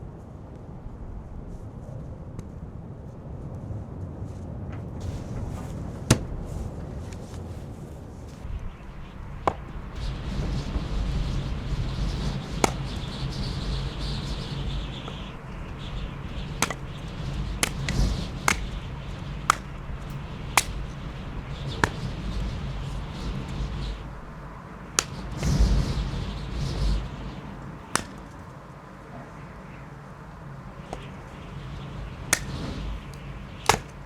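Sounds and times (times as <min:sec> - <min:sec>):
sharp knocks: 0:06.1 - 0:06.4, 0:12.6 - 0:13.0, 0:16.6 - 0:17.0, 0:17.6 - 0:18.8, 0:19.4 - 0:20.9, 0:21.8 - 0:22.2, 0:25.0 - 0:25.7, 0:27.9 - 0:28.4, 0:32.3 - 0:32.7, 0:33.6 - 0:34.0.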